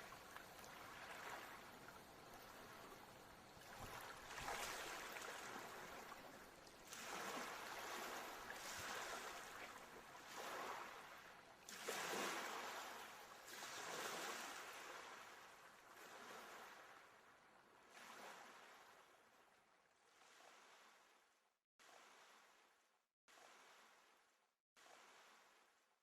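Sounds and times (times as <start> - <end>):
ocean waves washing in: 0.0 - 17.2.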